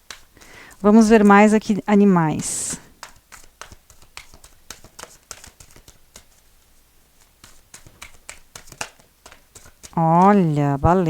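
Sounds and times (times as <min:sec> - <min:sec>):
cards being shuffled: 0:00.0 - 0:01.7, 0:02.7 - 0:11.0.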